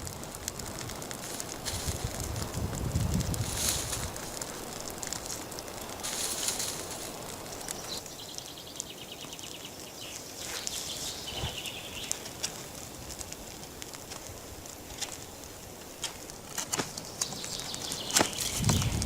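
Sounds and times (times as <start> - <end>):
faint rustling: 0.0 - 8.1.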